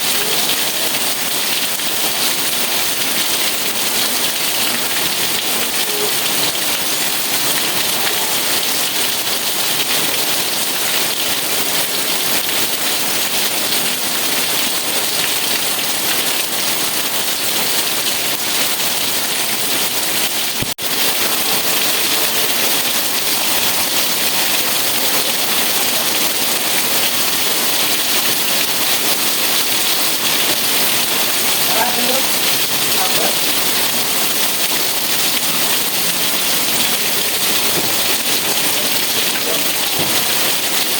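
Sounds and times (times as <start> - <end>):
dense rain hissing: 20.8 - 40.9.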